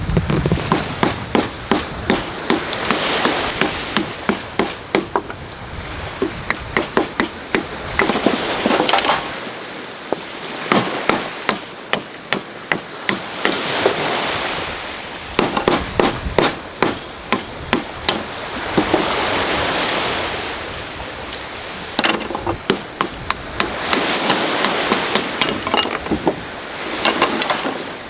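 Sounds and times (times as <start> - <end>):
waves breaking on the shore: 0.0 - 28.0
sharp knocks: 0.1 - 5.4, 6.2 - 9.3, 15.4 - 19.1, 22.0 - 26.4, 27.0 - 27.9.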